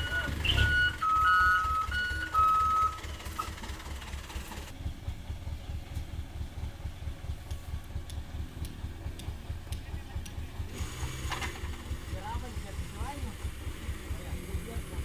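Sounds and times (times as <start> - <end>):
reversing beeper: 0.0 - 3.6
truck engine idling: 0.0 - 15.0.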